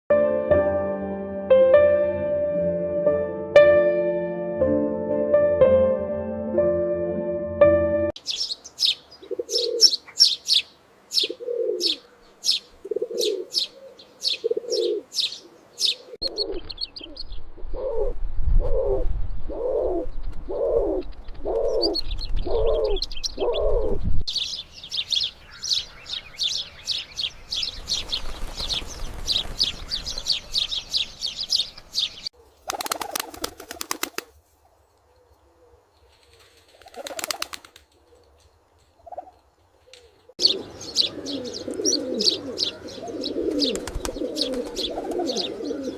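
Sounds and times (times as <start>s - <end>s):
sparrows chirping: 8.2s - 17.9s, 20.6s - 32.8s, 39.8s - 45.9s
pigeon cooing: 9.2s - 10.2s, 11.2s - 24.1s, 39.9s - 45.9s.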